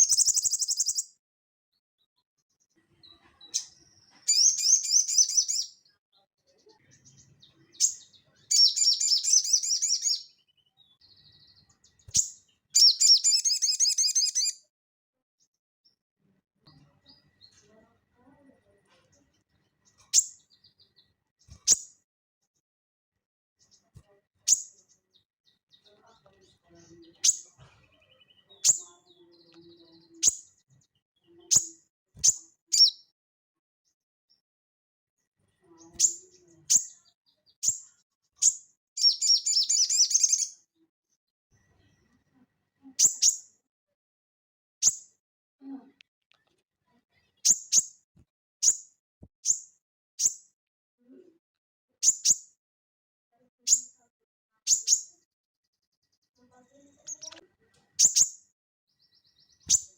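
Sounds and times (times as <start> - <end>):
high sharp bird calls: 0.0 - 1.1, 3.5 - 5.8, 7.8 - 10.4, 12.0 - 14.6, 31.5 - 33.0, 38.4 - 40.6, 58.0 - 58.4
soft bird twittering: 0.0 - 1.2, 3.0 - 5.9, 6.6 - 14.6, 19.8 - 22.0, 26.9 - 30.6, 31.4 - 33.1, 35.9 - 40.6, 43.0 - 43.5, 48.6 - 50.4, 52.0 - 52.5, 54.7 - 55.2, 58.0 - 59.9.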